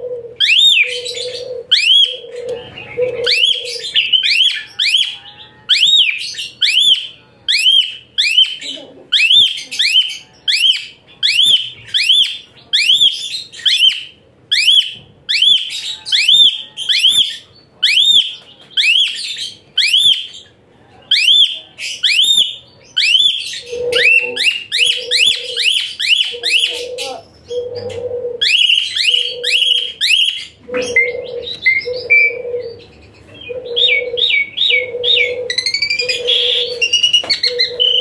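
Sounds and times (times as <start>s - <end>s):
starling singing high whistles: 21.1s - 27.0s, 28.4s - 32.4s, 33.8s - 38.0s.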